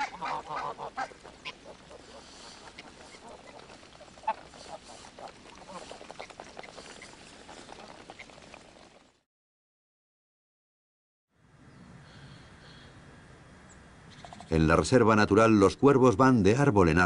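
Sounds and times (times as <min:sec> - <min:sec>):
geese calling softly: 0:00.0 - 0:09.0
bills pecking at snow: 0:00.0 - 0:09.2.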